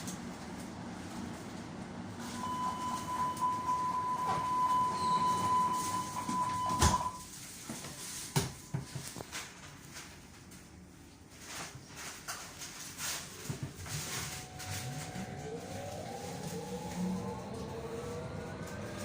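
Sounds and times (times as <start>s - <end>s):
high door warning tone: 2.2s - 8.8s.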